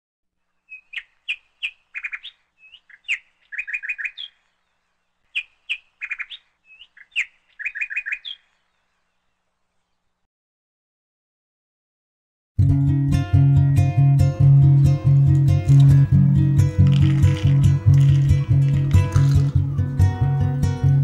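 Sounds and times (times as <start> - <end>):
songbird singing: 0.4 - 10.3.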